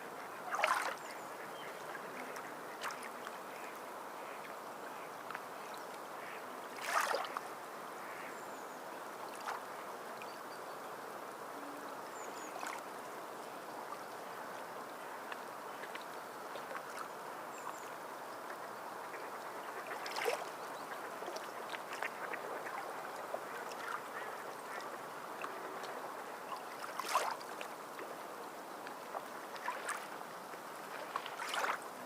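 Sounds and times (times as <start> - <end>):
water lapping: 0.2 - 7.5, 18.5 - 32.0
water splashes: 0.4 - 1.2, 1.8 - 4.5, 5.2 - 7.5, 12.4 - 12.9, 19.2 - 32.0.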